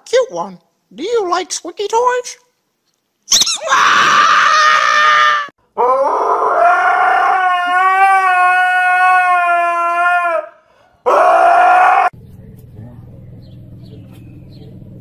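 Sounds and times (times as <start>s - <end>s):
shrill high-pitched squeal: 3.3s - 5.5s
dog howling: 3.6s - 12.2s.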